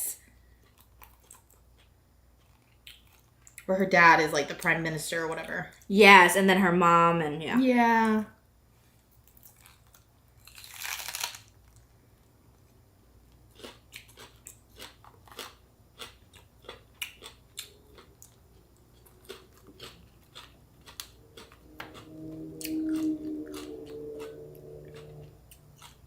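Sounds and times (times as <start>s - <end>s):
chewing and crunching food: 0.3s - 3.7s, 9.1s - 26.0s.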